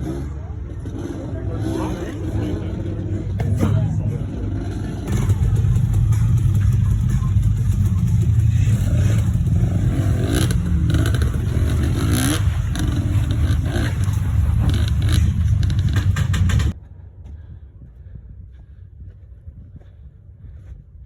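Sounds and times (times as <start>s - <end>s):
dirt bike engine revving: 0.0s - 16.8s
clattering knocks: 12.8s - 16.8s.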